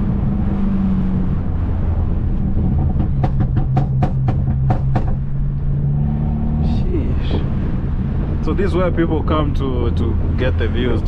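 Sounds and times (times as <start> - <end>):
car engine droning: 0.0 - 11.0
exhaust pops and crackles: 2.2 - 5.7.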